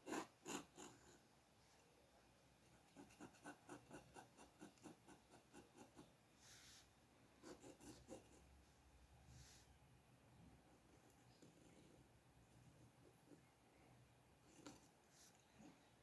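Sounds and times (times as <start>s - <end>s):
drawing strokes on paper: 0.0s - 1.2s, 2.8s - 8.6s
hand sliding across paper: 6.4s - 7.0s, 9.3s - 9.7s.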